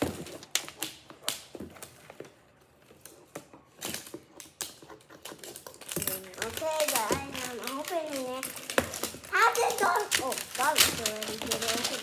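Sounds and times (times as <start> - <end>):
toy packaging crackling: 5.5 - 12.0.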